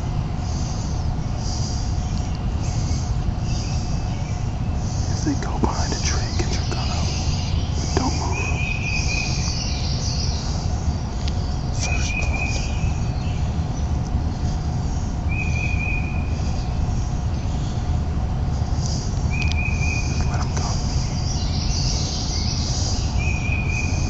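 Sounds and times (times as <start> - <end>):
bird trilling: 4.8 - 10.7.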